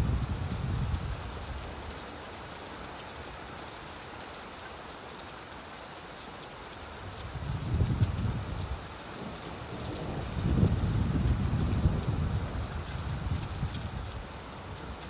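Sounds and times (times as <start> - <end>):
steady rain falling: 0.0 - 15.0
low thunder rumble: 9.8 - 14.1.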